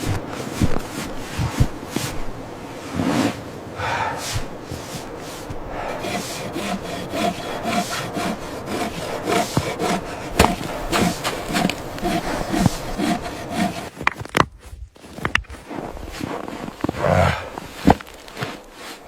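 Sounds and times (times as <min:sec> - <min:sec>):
hand saw cutting wood: 0:03.9 - 0:14.1.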